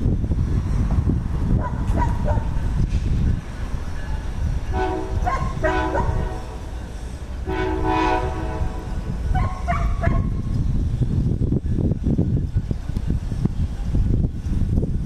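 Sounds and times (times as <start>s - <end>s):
low rumble of passing train: 0.0s - 15.0s
locomotive air horn blasts: 4.7s - 9.7s.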